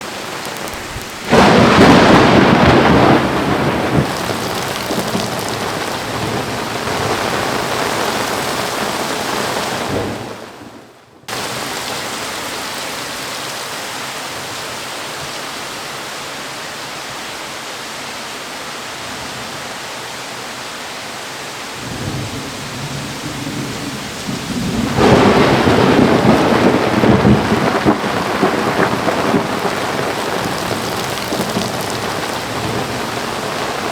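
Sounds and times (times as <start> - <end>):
heavy rain hissing: 0.0 - 33.9
thunder clap rumbling: 0.4 - 11.8, 21.8 - 33.9.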